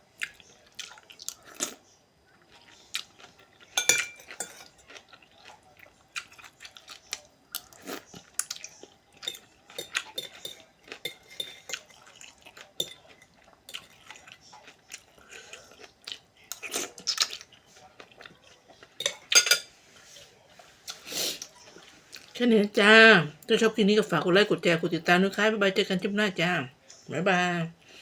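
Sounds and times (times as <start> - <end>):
chewing and crunching: 0.0 - 19.4
cutlery clinking against bowl: 3.8 - 4.8, 9.2 - 14.2, 19.0 - 19.8.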